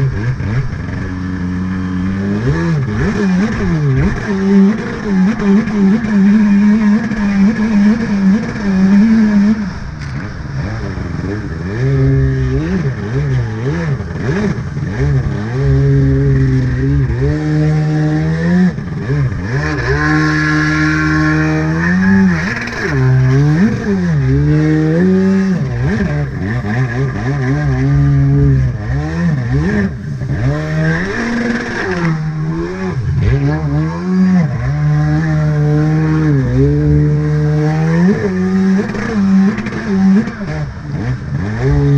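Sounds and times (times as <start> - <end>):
jet ski engine revving: 0.0 - 41.9.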